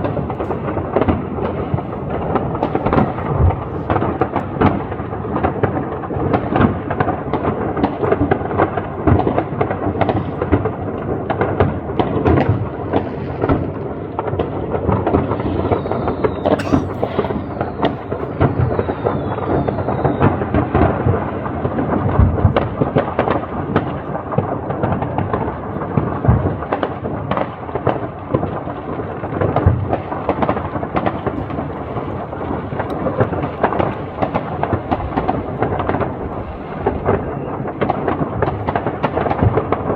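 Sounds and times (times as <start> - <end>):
fireworks banging and crackling: 0.0 - 39.9
whistling rockets: 14.4 - 21.6, 29.6 - 39.9.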